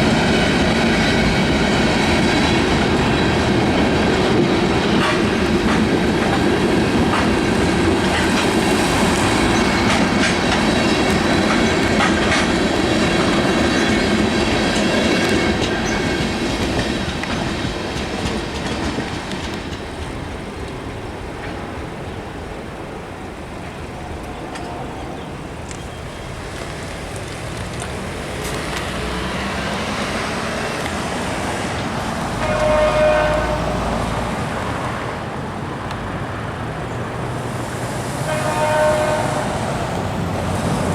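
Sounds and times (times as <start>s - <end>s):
train wheels clacking on rails: 0.0s - 22.2s, 25.7s - 35.0s
train horn toot: 32.4s - 34.0s, 38.2s - 39.7s.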